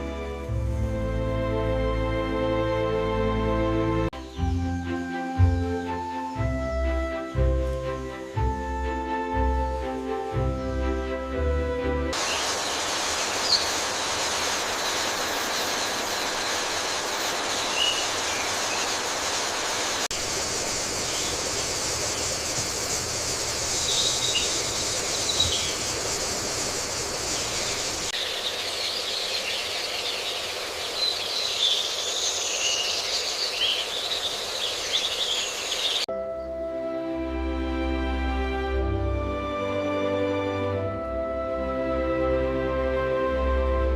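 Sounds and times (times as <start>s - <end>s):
steady high hiss: 5.8s - 11.2s, 12.1s - 36.1s
bird chirps: 12.2s - 19.0s, 20.9s - 36.5s.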